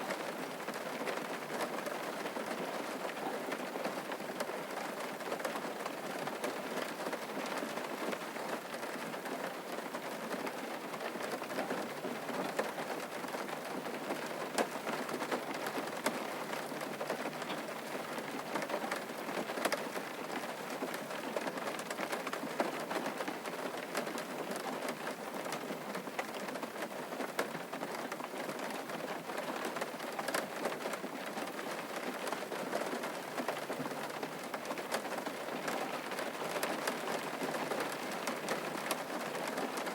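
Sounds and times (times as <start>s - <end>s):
rain falling on a surface: 0.0s - 39.9s
raindrop ticks: 10.4s - 39.9s.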